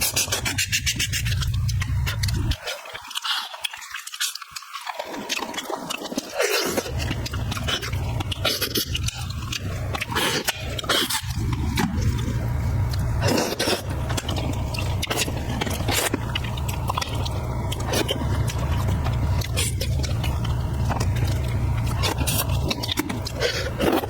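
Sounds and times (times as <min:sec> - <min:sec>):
person chewing food: 0:00.0 - 0:24.0
low rumble: 0:11.2 - 0:24.0.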